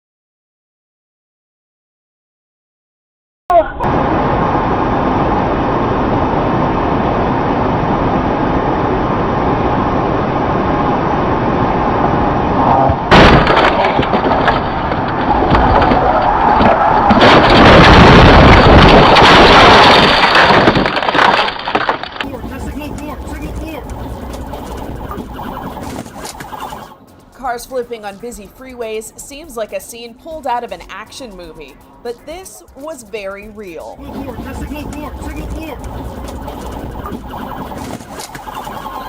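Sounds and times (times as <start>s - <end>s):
loud bang: 12.6s - 21.3s
metal and glass crunching: 13.1s - 24.8s
road and engine noise: 22.2s - 28.5s, 33.7s - 38.6s.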